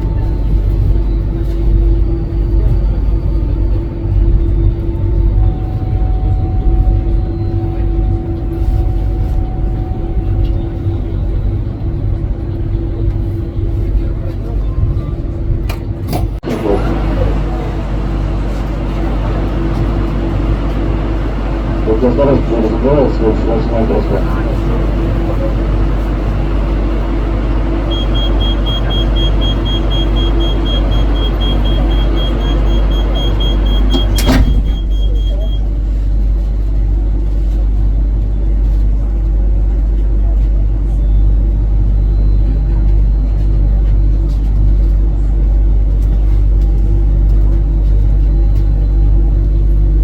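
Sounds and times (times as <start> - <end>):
constant train hum: 0.0 - 50.0
electric train rumble: 0.0 - 50.0
rapid high-pitched beeping: 19.6 - 35.7.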